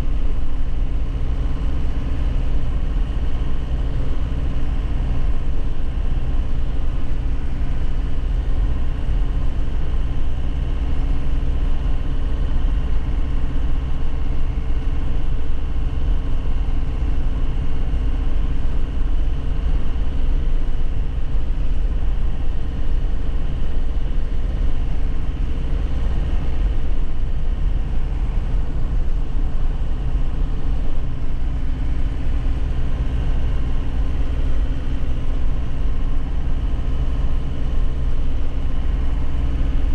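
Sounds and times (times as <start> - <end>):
deep road rumble: 0.0 - 39.9
truck engine running: 0.0 - 39.9.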